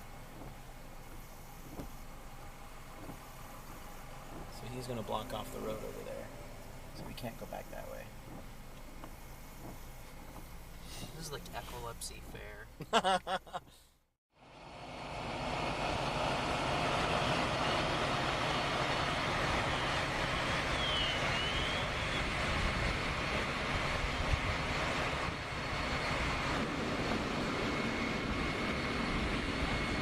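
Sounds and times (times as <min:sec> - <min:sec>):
heavy engines droning: 0:14.4 - 0:30.0
faint whistling glides: 0:19.0 - 0:30.0.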